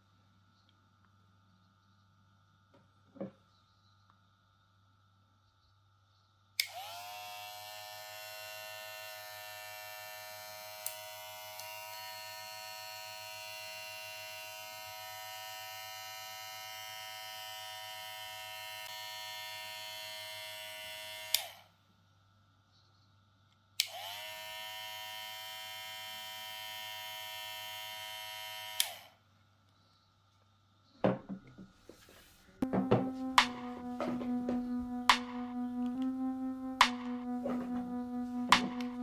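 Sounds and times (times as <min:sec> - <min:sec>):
hair clipper switch click: 0:06.6 - 0:07.0, 0:10.7 - 0:11.8, 0:21.2 - 0:21.5, 0:28.7 - 0:29.0
hair clipper motor buzzing: 0:06.6 - 0:21.6, 0:23.8 - 0:29.1.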